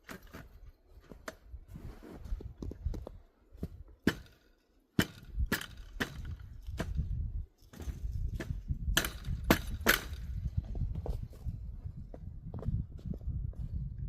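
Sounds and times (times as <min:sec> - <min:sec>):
footsteps crunching through snow: 0:00.1 - 0:02.9
wind rumbling on microphone: 0:00.4 - 0:04.0, 0:05.0 - 0:14.0.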